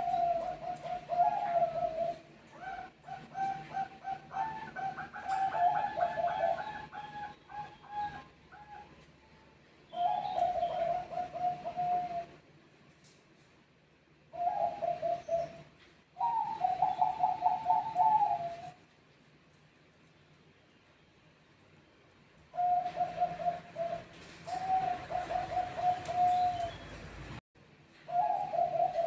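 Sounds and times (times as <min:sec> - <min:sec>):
doves cooing: 0:00.0 - 0:09.1, 0:09.9 - 0:12.4, 0:14.3 - 0:18.8, 0:22.5 - 0:27.3, 0:28.1 - 0:29.0.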